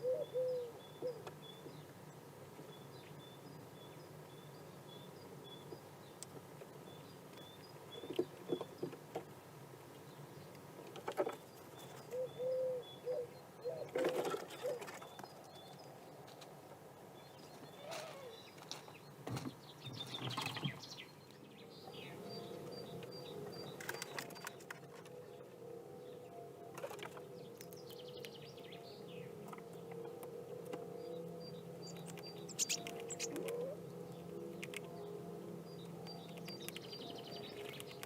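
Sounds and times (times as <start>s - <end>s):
pigeon cooing: 0.0s - 1.3s, 12.1s - 15.1s, 17.8s - 18.4s, 32.0s - 34.0s
small bird chirping: 31.4s - 33.8s, 35.7s - 38.0s.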